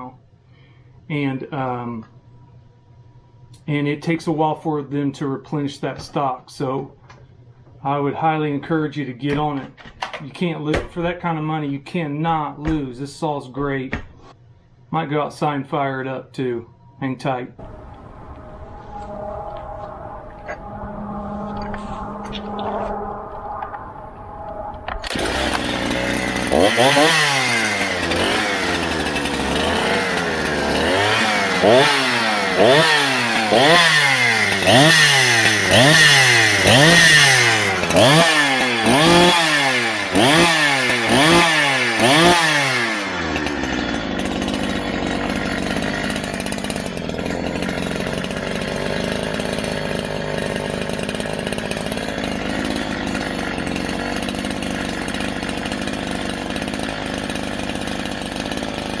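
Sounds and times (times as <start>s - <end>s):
chainsaw throttle revving and idling: 25.1s - 59.0s.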